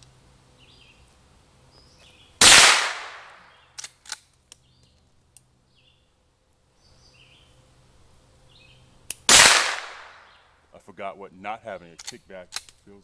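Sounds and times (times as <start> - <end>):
rifle shot: 2.4 - 3.4, 9.3 - 10.2.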